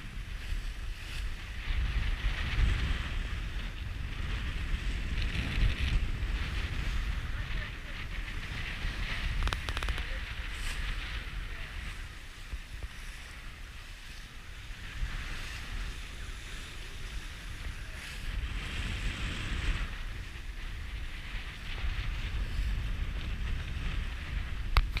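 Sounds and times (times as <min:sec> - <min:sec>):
steady low rumble: 0:00.0 - 0:25.0
wind buffeting microphone: 0:00.0 - 0:25.0.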